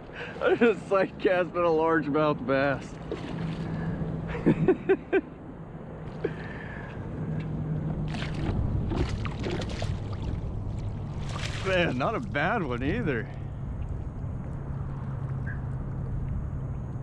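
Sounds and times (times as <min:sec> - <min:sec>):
fish thrashing and water splashing: 0:02.8 - 0:04.0, 0:08.0 - 0:12.4.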